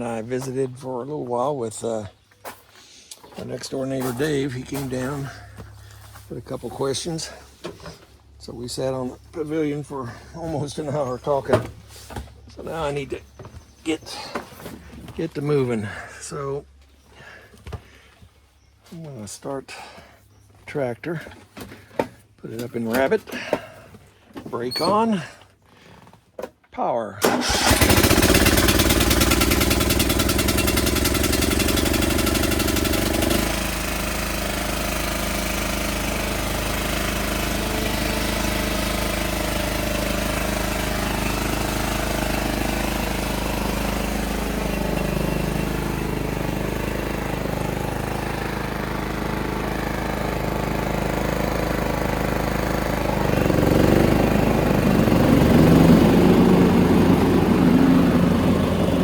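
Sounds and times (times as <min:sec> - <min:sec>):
lawn tractor engine running: 0:03.4 - 0:16.2, 0:24.5 - 0:25.4, 0:27.2 - 0:59.0.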